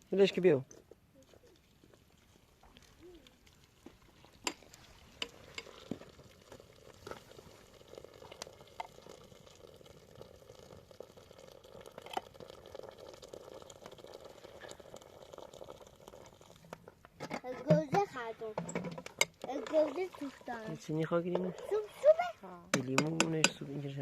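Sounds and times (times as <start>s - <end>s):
food bubbling and sizzling in a pot: 0.0s - 24.0s.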